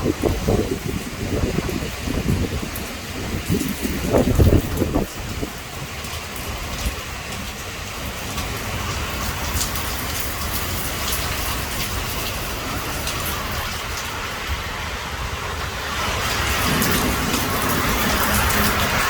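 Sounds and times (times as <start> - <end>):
low thunder rumble: 0.0 - 7.0, 12.0 - 19.0
heavy rain falling: 0.0 - 19.0
sharp raindrop ticks: 1.4 - 14.6, 16.1 - 19.0.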